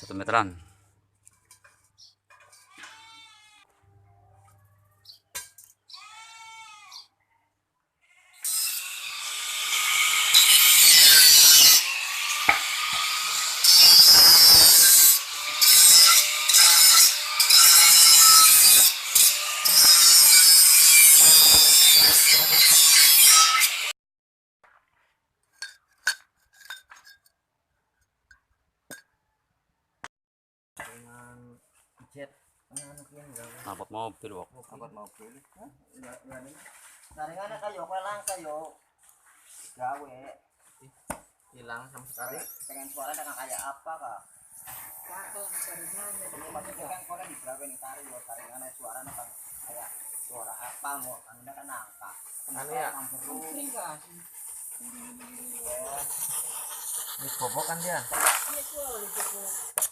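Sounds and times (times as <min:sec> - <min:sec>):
animal bleating: 0:02.6 - 0:05.1, 0:05.9 - 0:08.4
harsh rasping tool noise: 0:08.4 - 0:24.0, 0:44.4 - 0:59.9
metal pipe clinks and taps: 0:25.5 - 0:27.4.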